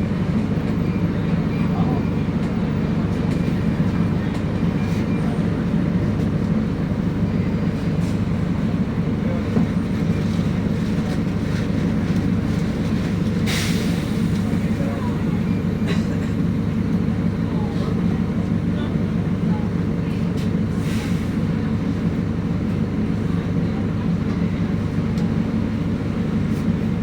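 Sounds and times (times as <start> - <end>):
bus engine droning: 0.0 - 27.0.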